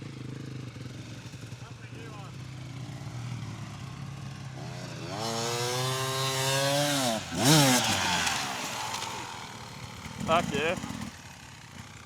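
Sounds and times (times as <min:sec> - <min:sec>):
dirt bike engine revving: 0:04.6 - 0:11.9.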